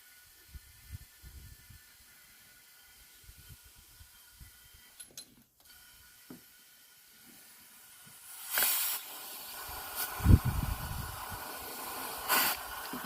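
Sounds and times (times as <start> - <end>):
metal parts clicking and knocking: 4.9 - 5.5
compressed air hiss: 6.0 - 13.0.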